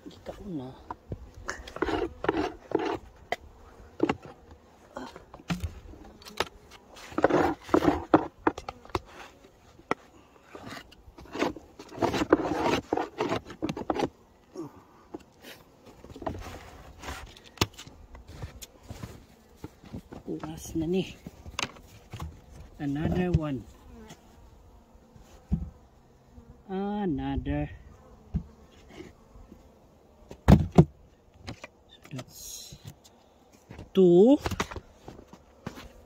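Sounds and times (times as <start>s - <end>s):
scraping and knocking wooden parts: 0.9s - 3.4s, 5.2s - 14.2s, 15.1s - 23.4s, 30.3s - 32.3s.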